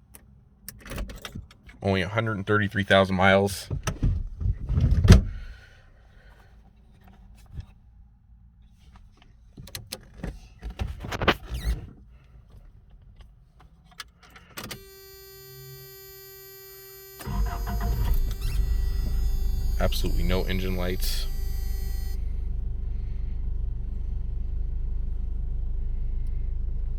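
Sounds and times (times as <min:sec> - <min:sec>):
electronic warning buzz: 0:14.8 - 0:22.7
loud low engine sound: 0:17.2 - 0:26.9.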